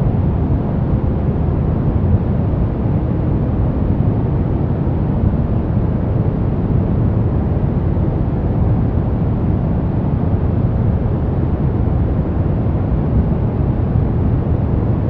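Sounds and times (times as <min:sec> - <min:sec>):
brown noise rumble: 0:00.0 - 0:15.0.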